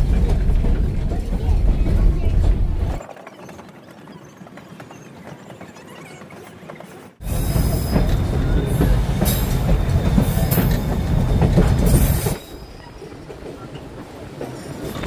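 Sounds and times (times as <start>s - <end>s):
train wheels rumbling and clacking: 0.0s - 15.0s
high wheel squeals: 9.3s - 13.4s.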